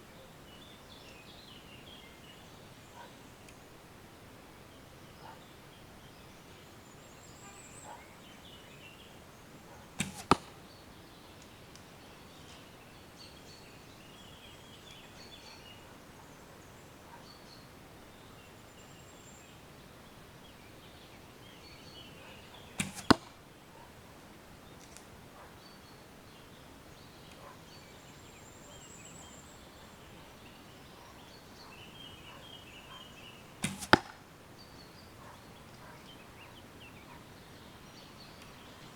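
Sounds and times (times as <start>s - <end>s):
bow string release: 10.0s - 10.5s, 22.8s - 23.3s, 33.6s - 34.2s
arrow hitting target: 10.0s - 10.6s, 22.8s - 23.4s, 33.6s - 34.3s.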